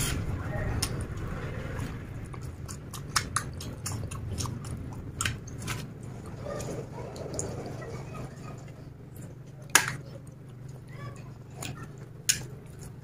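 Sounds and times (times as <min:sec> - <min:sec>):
person chewing food: 0:00.0 - 0:07.8, 0:08.6 - 0:13.0
mouth smacking clicks: 0:02.7 - 0:05.6.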